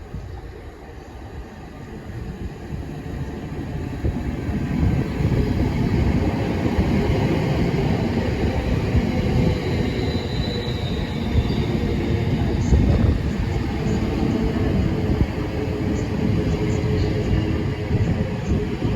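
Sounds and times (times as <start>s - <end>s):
train wheels rumbling on rails: 0.0s - 18.9s
faint train wheel squeal: 9.1s - 14.6s.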